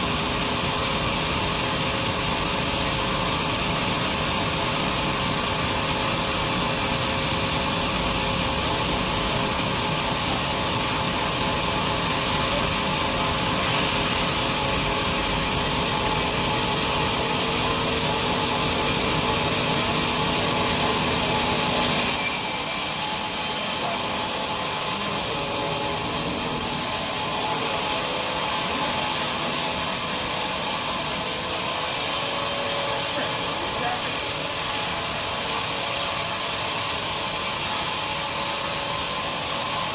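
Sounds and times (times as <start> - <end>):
bandsaw cutting through log: 11.0 - 39.9.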